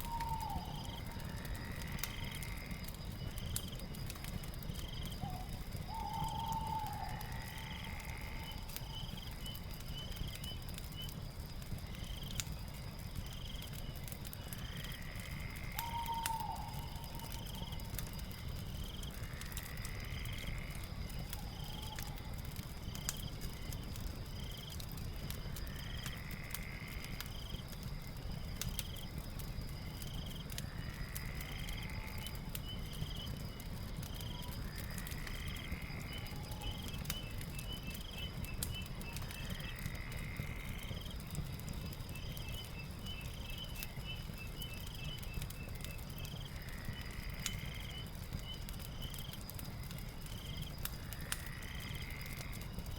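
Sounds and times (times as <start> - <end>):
fireplace fire crackling: 0.0 - 52.9
insect chirps: 0.0 - 52.9
high insect drone: 51.0 - 52.6.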